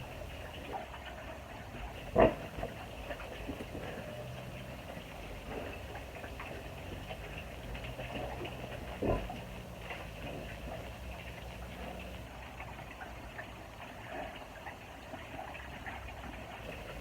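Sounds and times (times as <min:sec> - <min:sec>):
pigs moving in a pen: 0:00.0 - 0:12.3, 0:16.6 - 0:17.0.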